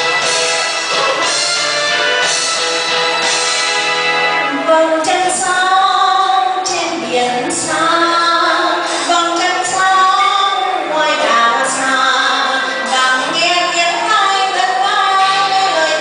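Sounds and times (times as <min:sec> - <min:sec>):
instrumental backing music: 0:00.0 - 0:16.0
woman singing: 0:04.5 - 0:16.0.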